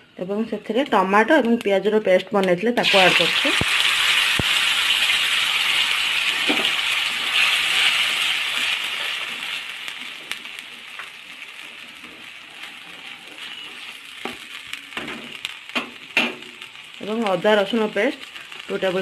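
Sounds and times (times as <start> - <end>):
paste sizzling in hot oil: 2.8 - 19.0
wooden spatula stirring and scraping: 7.2 - 15.4.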